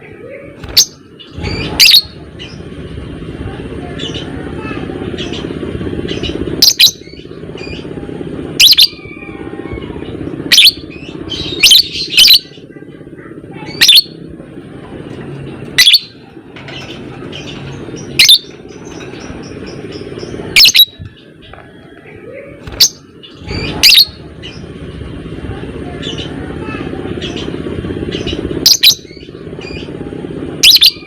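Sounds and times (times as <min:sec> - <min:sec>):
lovebird chirping shrilly: 0:00.6 - 0:02.1, 0:10.5 - 0:12.5, 0:13.7 - 0:14.2, 0:15.8 - 0:16.2, 0:18.0 - 0:18.5, 0:20.6 - 0:21.0, 0:22.7 - 0:24.2, 0:28.3 - 0:29.3, 0:30.6 - 0:31.0.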